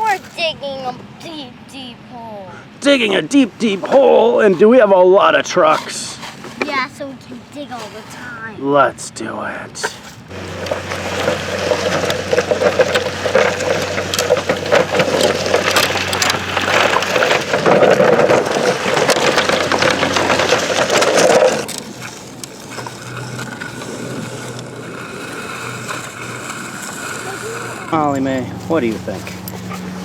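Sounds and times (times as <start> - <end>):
toy trucks scraping sand: 2.8 - 8.5, 9.8 - 30.0.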